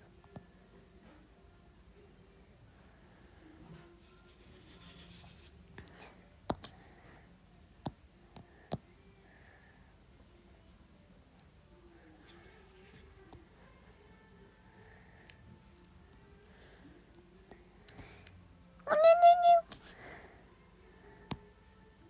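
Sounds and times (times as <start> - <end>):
scratchy scribbling: 4.1 - 5.6.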